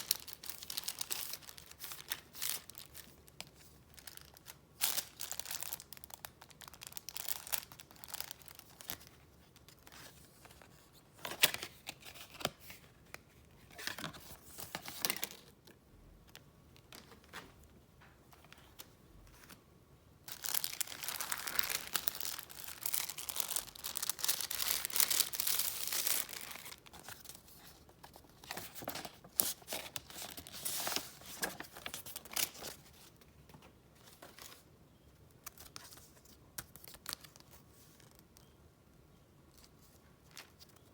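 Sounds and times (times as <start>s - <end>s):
wrapping paper tearing: 20.3s - 26.8s
paper rustling and crinkling: 20.3s - 34.7s.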